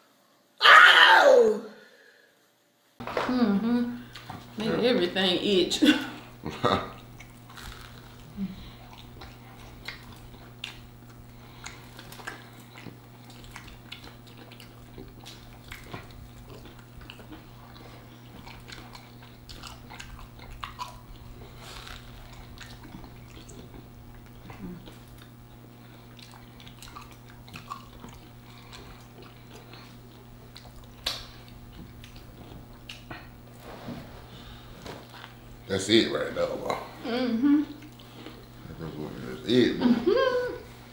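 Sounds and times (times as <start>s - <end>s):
steady low hum: 3.0s - 40.9s
people chewing and biting food: 3.2s - 4.8s, 6.2s - 40.9s.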